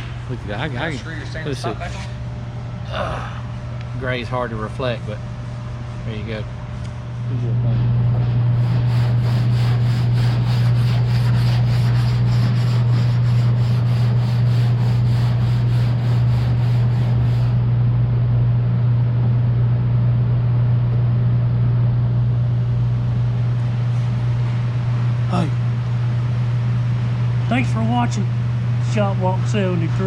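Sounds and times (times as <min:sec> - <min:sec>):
low machine hum: 0:00.0 - 0:30.0
rhythmic scraping strokes: 0:08.2 - 0:17.6.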